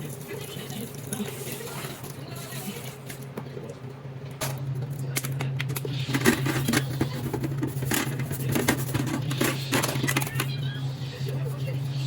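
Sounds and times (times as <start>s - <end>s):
dishes clinking and clattering: 4.4s - 10.5s.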